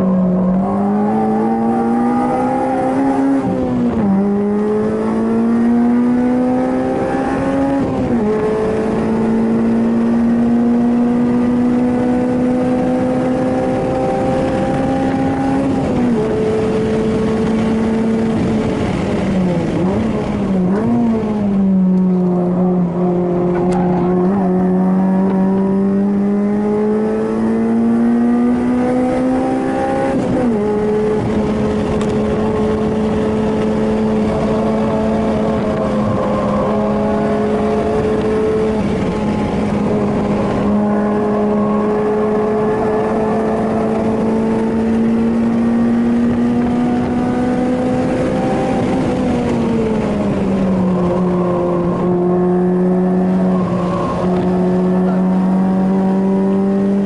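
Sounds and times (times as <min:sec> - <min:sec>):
car engine at high revs: 0:00.0 - 0:57.0.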